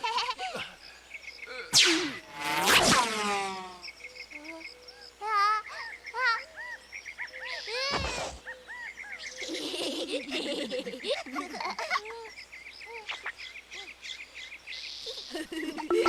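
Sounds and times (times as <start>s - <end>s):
cartoon whoosh falling in pitch: 1.8s - 3.8s
high chirps and warbling calls: 1.8s - 9.6s, 12.8s - 14.2s, 14.8s - 16.0s.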